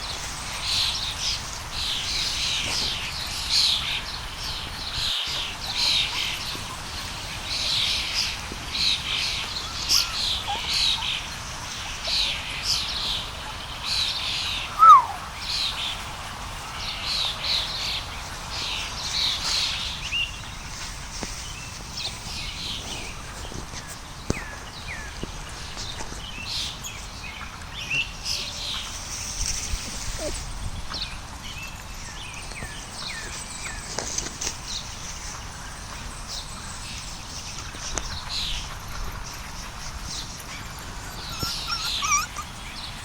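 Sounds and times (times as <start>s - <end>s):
lower falling call: 14.7s - 15.4s
high-pitched falling chirps: 14.8s - 15.2s.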